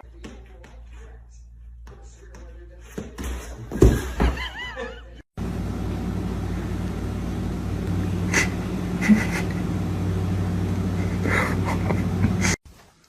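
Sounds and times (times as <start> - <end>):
engine humming: 5.4 - 12.6.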